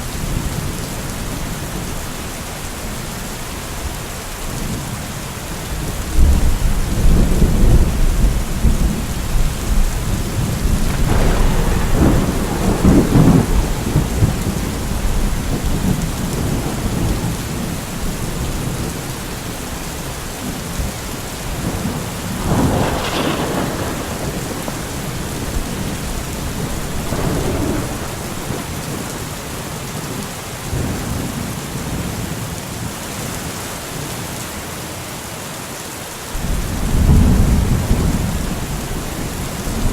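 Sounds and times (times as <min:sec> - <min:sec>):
steady rain: 0:00.0 - 0:39.9
rolling thunder: 0:05.7 - 0:19.8, 0:20.4 - 0:29.3, 0:36.4 - 0:39.9
sharp thunderclap: 0:06.2 - 0:17.6, 0:21.6 - 0:29.1, 0:36.4 - 0:39.9.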